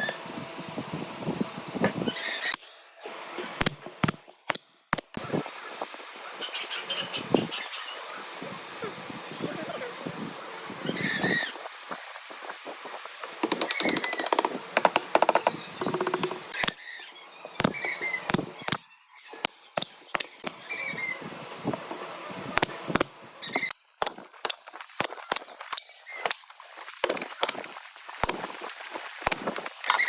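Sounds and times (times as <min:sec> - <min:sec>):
birds chirping: 0:06.2 - 0:12.2, 0:13.4 - 0:23.7
tools striking wood: 0:13.4 - 0:16.8, 0:17.6 - 0:18.8, 0:22.6 - 0:26.4.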